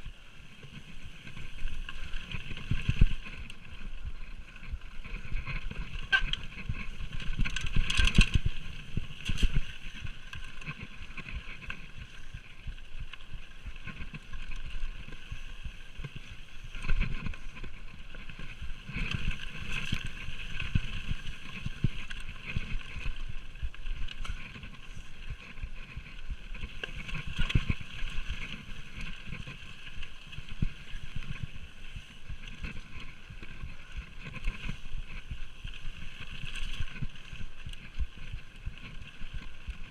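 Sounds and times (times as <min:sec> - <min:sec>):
bike tyres rumbling over dirt: 0:00.0 - 0:39.9
bike knocks and rattles: 0:00.6 - 0:31.4.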